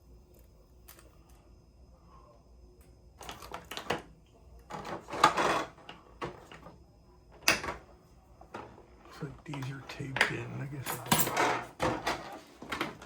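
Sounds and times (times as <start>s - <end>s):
packaging rustling and clattering: 11.0s - 13.0s.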